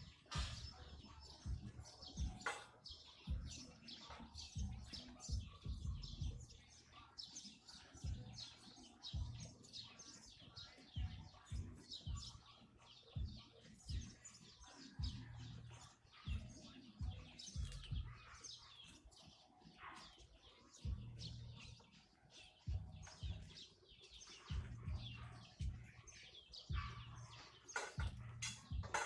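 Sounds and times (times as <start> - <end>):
small birds chirping: 0.0 - 29.0
low thumps: 3.3 - 3.6, 20.9 - 21.5, 22.7 - 23.5, 27.8 - 29.0.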